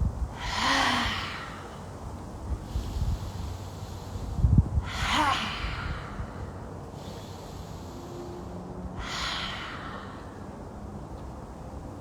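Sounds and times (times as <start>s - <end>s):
forceful open-mouthed exhalations: 0.3s - 1.9s, 2.6s - 7.9s, 9.0s - 10.5s.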